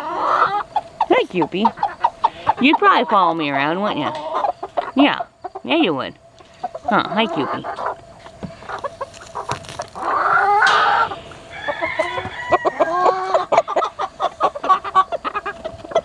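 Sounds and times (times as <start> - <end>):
chickens clucking: 0.0 - 16.0
rooster crowing: 10.0 - 13.6.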